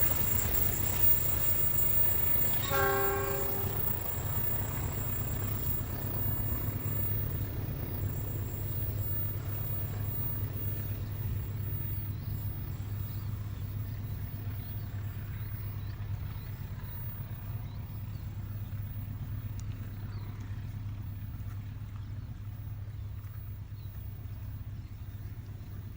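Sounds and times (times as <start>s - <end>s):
train passing rumble: 0.0s - 25.9s
train horn: 0.1s - 9.6s.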